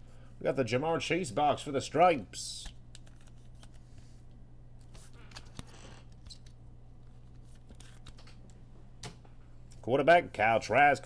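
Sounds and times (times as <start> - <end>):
low electrical hum: 0.0 - 11.0
cards sliding and clicking: 2.6 - 4.2, 4.8 - 6.6, 7.2 - 8.5.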